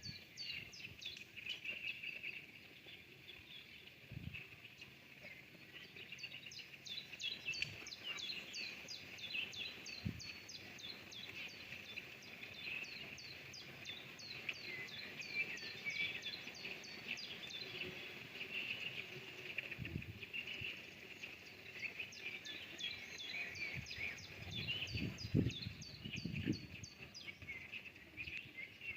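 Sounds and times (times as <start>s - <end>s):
songbirds chirping: 0.0s - 28.9s.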